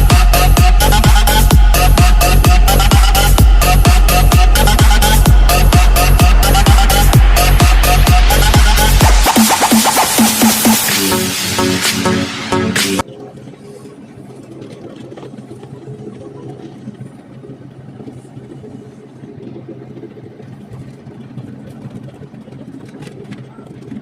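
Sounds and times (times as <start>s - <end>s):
electronic music: 0.0s - 13.3s
excavator engine running: 0.0s - 13.6s.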